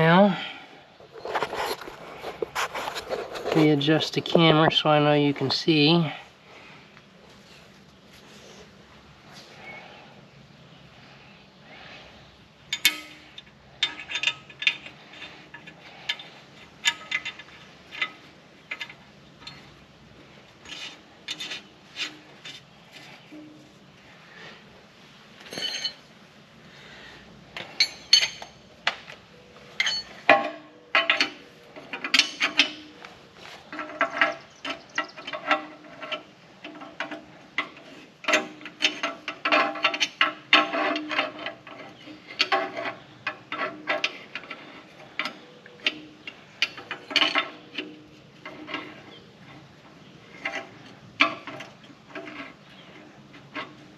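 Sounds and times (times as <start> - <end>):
wrench and ratchet clicking on bolts: 12.7 - 19.8, 29.8 - 33.0, 33.7 - 49.6.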